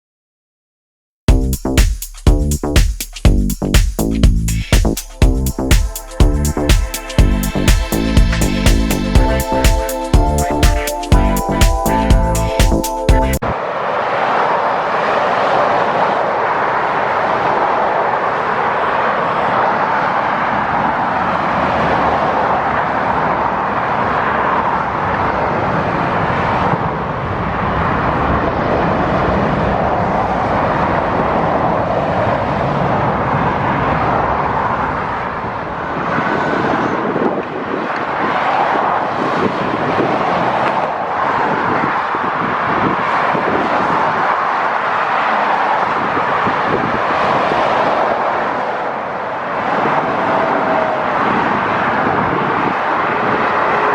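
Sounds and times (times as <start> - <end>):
road traffic noise: 6.4 - 13.4.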